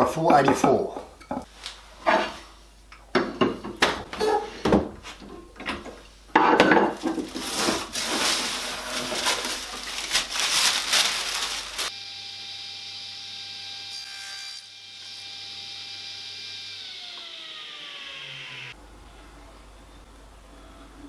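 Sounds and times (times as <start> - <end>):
rough scraping and rubbing: 7.0 - 11.9.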